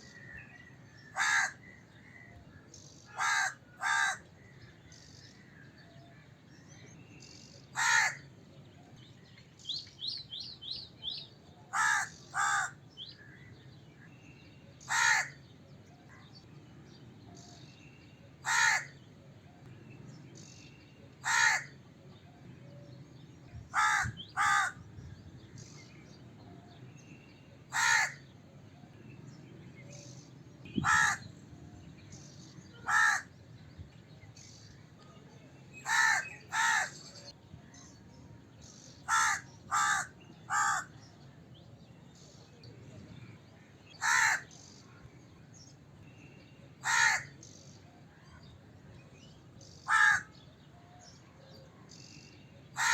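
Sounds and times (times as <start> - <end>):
crow cawing: 1.1 - 2.2, 3.2 - 4.5, 7.8 - 8.2, 11.7 - 13.4, 14.9 - 15.4, 18.4 - 19.0, 21.2 - 21.8, 23.7 - 24.8, 27.7 - 28.2, 30.8 - 31.2, 32.8 - 33.3, 35.8 - 37.0, 39.1 - 40.9, 44.0 - 44.5, 46.8 - 47.3, 49.9 - 50.3.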